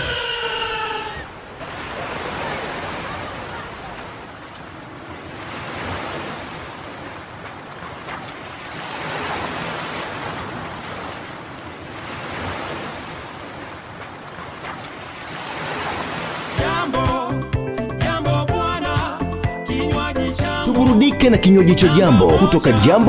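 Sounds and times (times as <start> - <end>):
waves washing on shore: 0.0 - 16.7.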